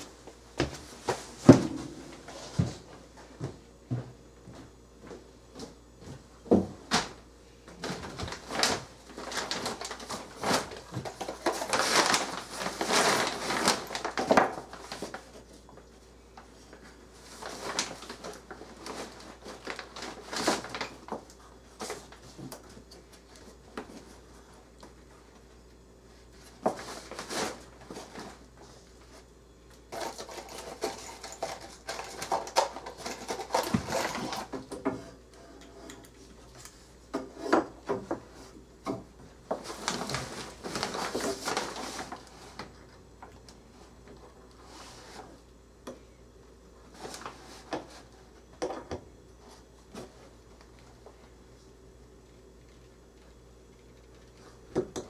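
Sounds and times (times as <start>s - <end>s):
objects being handled: 29.8s - 42.8s.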